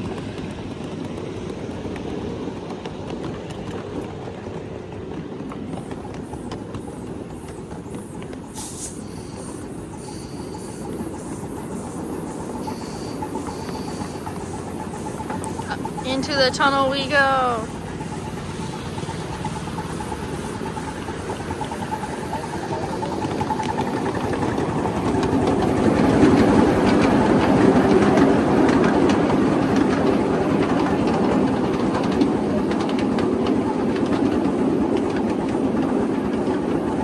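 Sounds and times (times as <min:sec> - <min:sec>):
train wheels rumbling on rail: 0:00.0 - 0:37.0
track clicks: 0:09.3 - 0:37.0.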